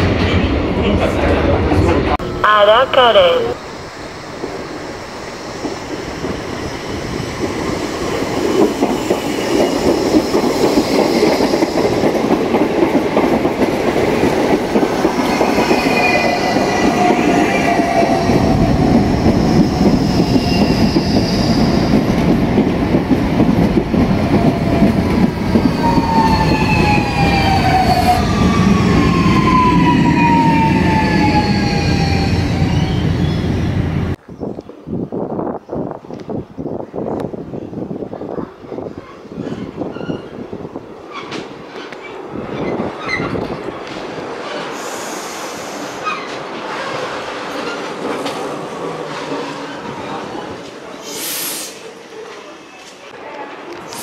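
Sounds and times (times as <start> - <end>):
electric train rumbling past: 0.0 - 34.2.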